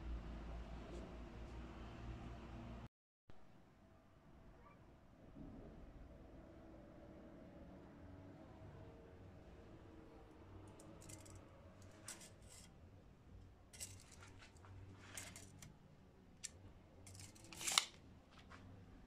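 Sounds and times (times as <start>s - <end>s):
clicks of small hard objects: 10.8s - 12.7s, 13.8s - 15.7s, 16.4s - 18.5s
loud scrape: 11.9s - 12.7s, 15.0s - 15.7s, 17.1s - 18.0s.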